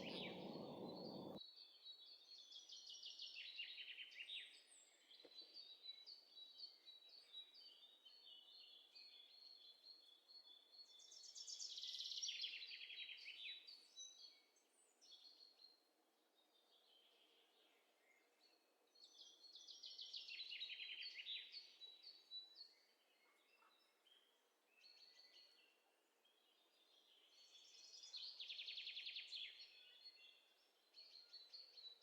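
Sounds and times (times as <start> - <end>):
faint songbird trills: 0.0 - 1.4
thin high bird chirps: 0.0 - 1.4.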